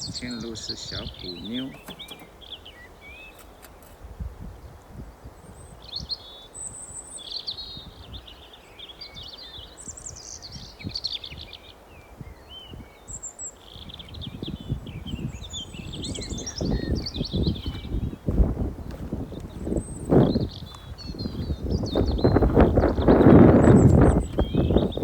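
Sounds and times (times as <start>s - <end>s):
small birds chirping and singing: 0.0s - 25.0s
low rumbling thumps: 16.0s - 25.0s.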